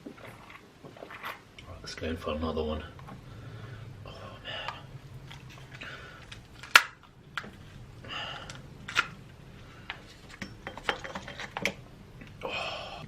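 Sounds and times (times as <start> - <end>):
soft chewing: 4.6 - 6.6.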